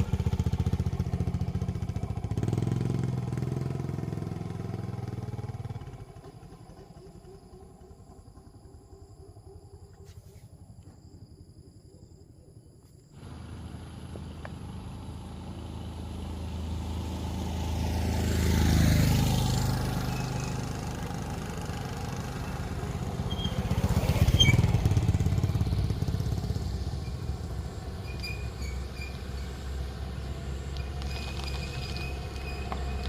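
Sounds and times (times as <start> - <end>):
steady engine hum: 0.0 - 33.0
vehicles driving past: 13.2 - 33.0.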